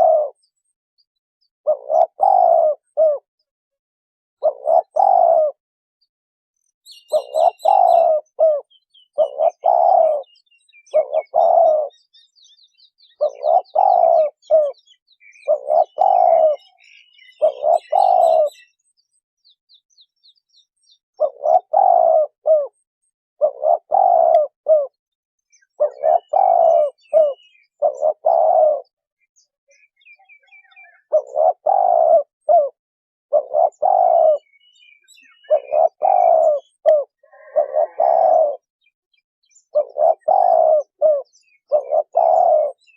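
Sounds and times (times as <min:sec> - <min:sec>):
dove cooing: 0:00.0 - 0:00.5, 0:01.6 - 0:03.3, 0:04.4 - 0:05.6, 0:06.9 - 0:12.2, 0:13.0 - 0:18.8, 0:21.2 - 0:22.8, 0:23.4 - 0:25.0, 0:25.6 - 0:29.0, 0:30.3 - 0:38.9, 0:39.6 - 0:42.9
faint small bird chirps: 0:06.6 - 0:42.9.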